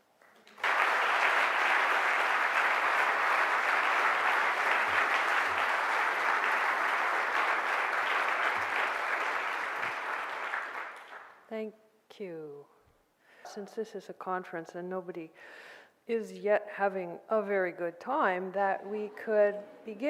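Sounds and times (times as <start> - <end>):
audience applauding: 0.2 - 11.4.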